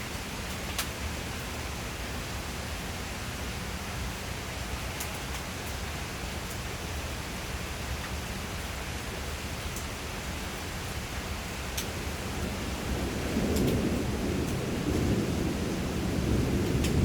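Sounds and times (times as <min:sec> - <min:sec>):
steady rain falling: 0:00.0 - 0:17.0
sharp drip ticks: 0:11.7 - 0:12.0.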